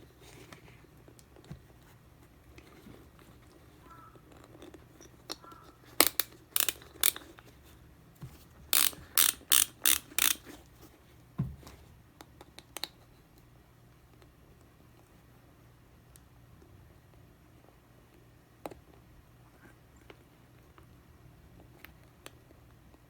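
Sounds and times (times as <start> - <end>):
shoe lacing dial ratchet clicking: 6.0 - 7.3, 8.7 - 10.5.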